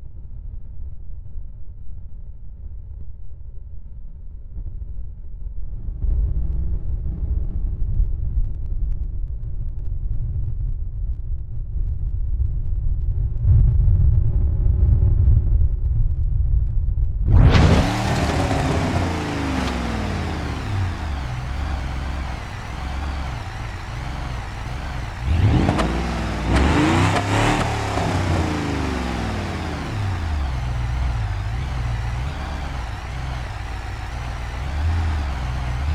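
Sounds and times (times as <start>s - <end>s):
drag car engine roaring: 17.3s - 35.9s.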